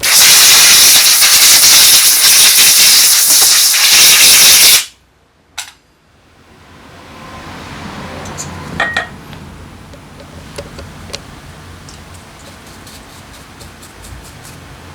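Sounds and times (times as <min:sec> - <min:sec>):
pressurized spray hiss: 0:00.0 - 0:04.9.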